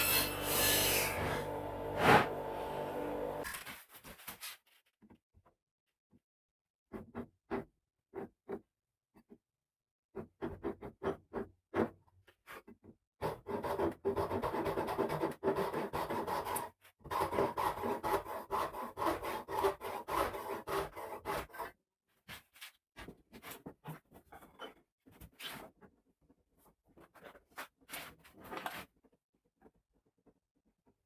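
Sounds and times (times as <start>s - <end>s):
hand tool scraping wood: 0.0s - 3.4s.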